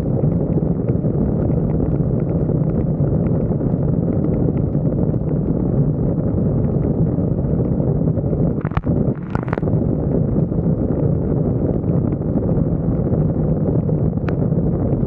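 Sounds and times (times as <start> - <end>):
wind buffeting microphone: 0.0 - 15.0
vehicle rumble and hum: 8.4 - 11.0.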